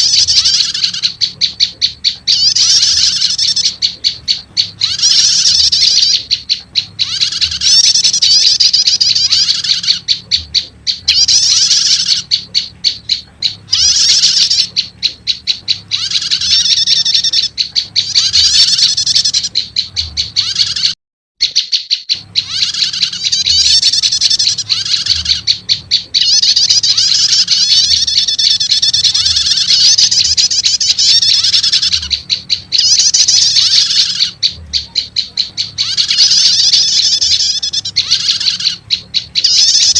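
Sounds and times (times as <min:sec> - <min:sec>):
rapid high bird chirping and trilling: 0:00.0 - 0:39.9.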